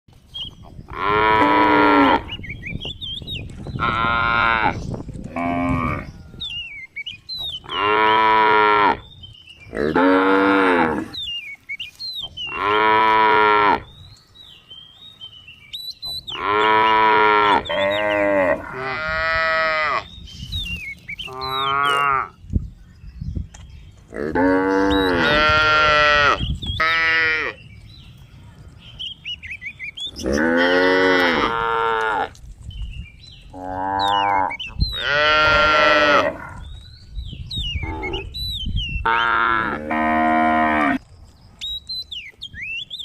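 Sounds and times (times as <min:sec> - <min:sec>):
cattle mooing: 0:24.2 - 0:27.6, 0:30.2 - 0:32.3.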